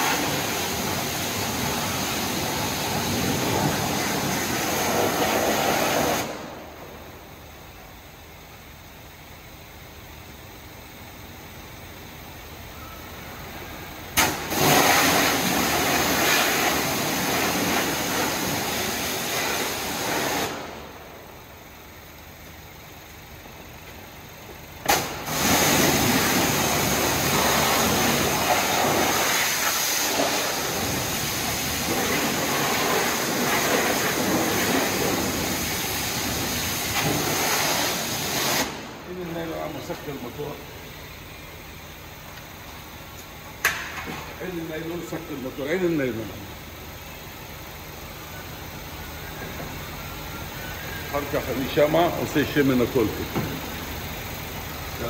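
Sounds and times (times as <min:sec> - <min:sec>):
pressure washer spray hissing: 0:00.0 - 0:06.6, 0:14.2 - 0:20.9, 0:24.8 - 0:40.8.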